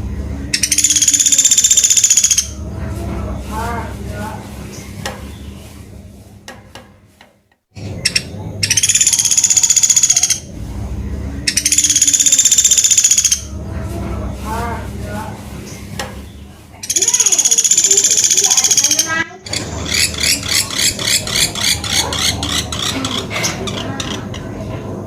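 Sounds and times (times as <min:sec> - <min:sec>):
bird arching notes: 0:00.0 - 0:06.7, 0:07.8 - 0:25.0
steady low hum: 0:00.0 - 0:25.0
woodpecker trilling rattle: 0:00.5 - 0:02.6, 0:07.8 - 0:10.5, 0:11.4 - 0:13.6, 0:16.3 - 0:24.5.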